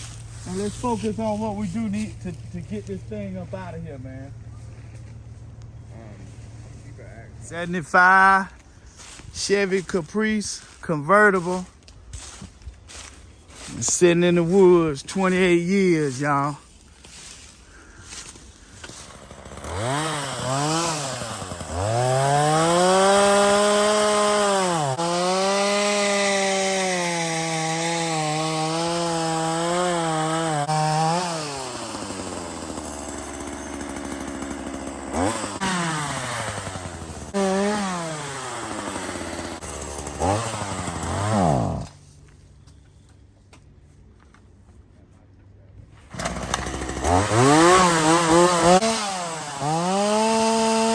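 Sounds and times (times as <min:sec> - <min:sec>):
chainsaw engine revving: 0:18.0 - 0:42.0, 0:46.1 - 0:50.9.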